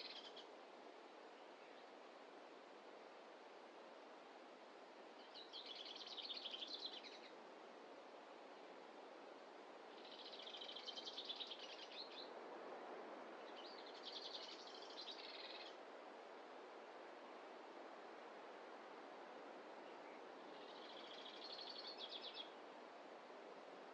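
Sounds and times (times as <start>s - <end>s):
songbird singing: 0.0s - 0.5s, 5.2s - 7.4s, 9.9s - 12.4s, 13.4s - 15.8s, 19.8s - 22.6s
soft hiss: 0.0s - 23.9s.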